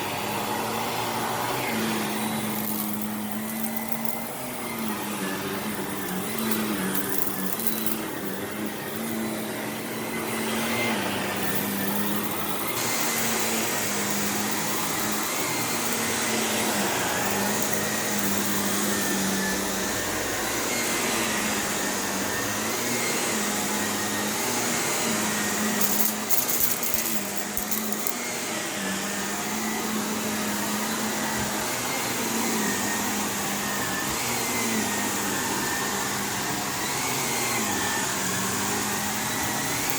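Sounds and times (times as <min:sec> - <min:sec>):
vacuum cleaner running over carpet: 0:00.0 - 0:39.9
grit crackling in vacuum: 0:00.5 - 0:23.4.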